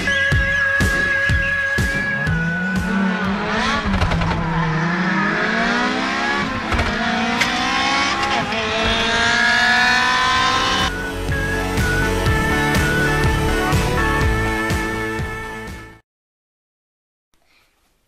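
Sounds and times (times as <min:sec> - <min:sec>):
racing car engine revving: 0:01.0 - 0:11.0.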